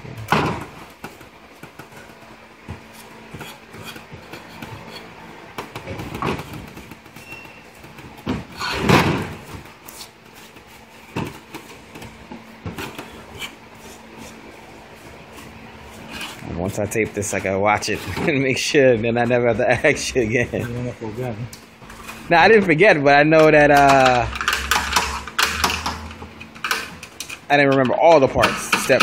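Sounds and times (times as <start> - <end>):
tools and motor parts clicking: 23.8 - 29.0.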